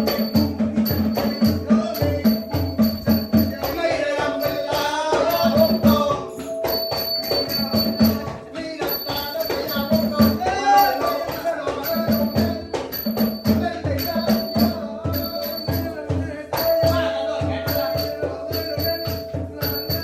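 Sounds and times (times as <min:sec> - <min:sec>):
hand drums beating: 0:00.0 - 0:20.0
small cymbals ringing: 0:00.0 - 0:20.0
wavering melody line: 0:00.0 - 0:20.0.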